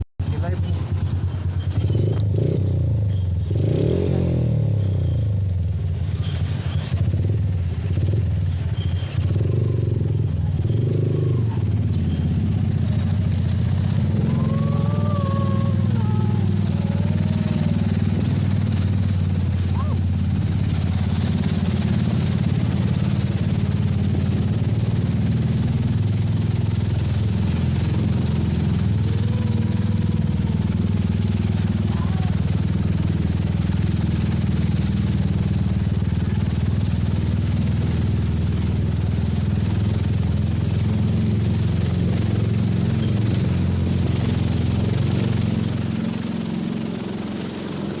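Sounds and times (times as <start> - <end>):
jet ski engine running: 0.2 - 48.0.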